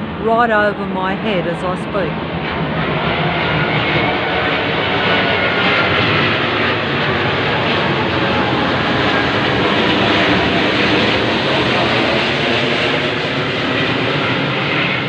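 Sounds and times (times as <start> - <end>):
airplane engines droning overhead: 0.0 - 15.0.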